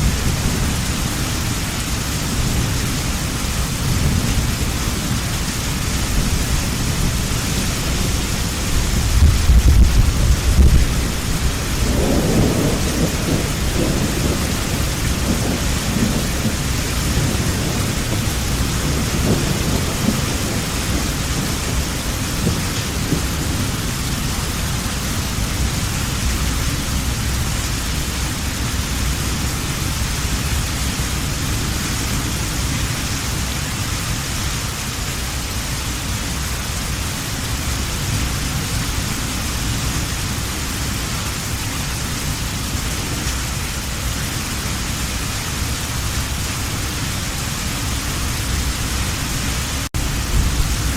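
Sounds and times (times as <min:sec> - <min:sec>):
rolling thunder: 0:00.0 - 0:33.0, 0:47.8 - 0:50.9
heavy rain falling: 0:00.0 - 0:50.9.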